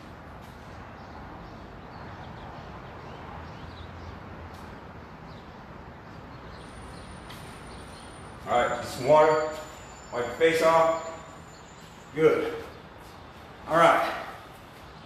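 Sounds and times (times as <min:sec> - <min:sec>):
faint bird chirps: 0:09.3 - 0:13.1.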